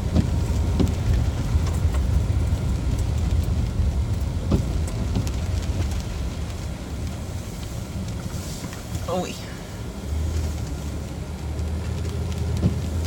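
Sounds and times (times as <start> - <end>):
light knocks and bumps: 0.0 - 3.6, 4.2 - 6.2, 11.8 - 13.0
car road and engine rumble: 0.0 - 13.0.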